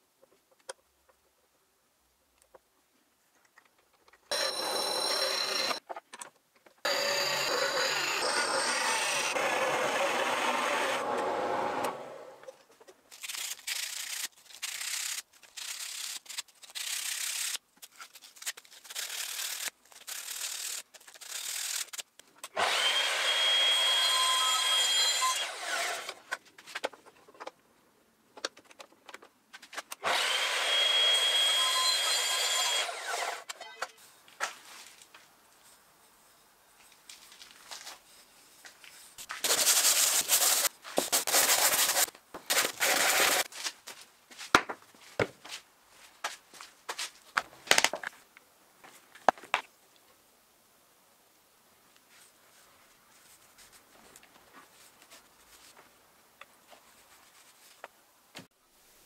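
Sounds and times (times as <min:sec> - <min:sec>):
drill press boring into wood: 0:04.3 - 0:05.8, 0:06.9 - 0:12.2, 0:30.0 - 0:33.5.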